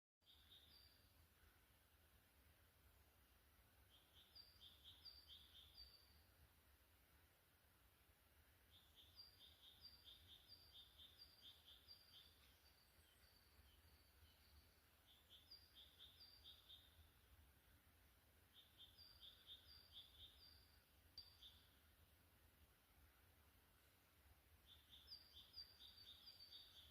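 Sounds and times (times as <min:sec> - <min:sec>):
small bird singing: 0:00.2 - 0:01.6, 0:03.6 - 0:06.4, 0:08.6 - 0:17.4, 0:18.3 - 0:22.1, 0:24.5 - 0:26.9.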